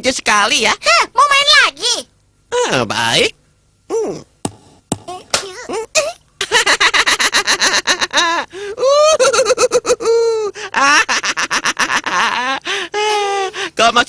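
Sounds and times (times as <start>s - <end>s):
cartoon character laughing: 5.6s - 12.6s.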